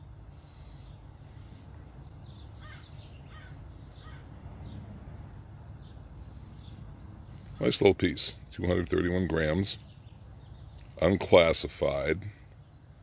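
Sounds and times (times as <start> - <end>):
steady low background noise: 0.0 - 13.0
bird calling: 0.3 - 4.9.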